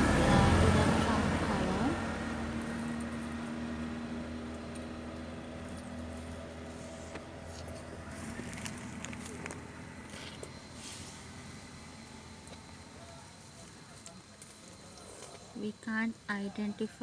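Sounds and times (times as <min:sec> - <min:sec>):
engine humming: 0:00.0 - 0:16.2
faint clicks and rustles: 0:05.6 - 0:11.3.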